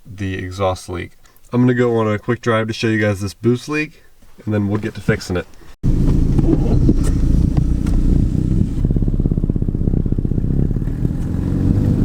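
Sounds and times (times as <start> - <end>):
exhaust leak ticking: 5.8 - 11.0
car engine running: 5.8 - 12.0.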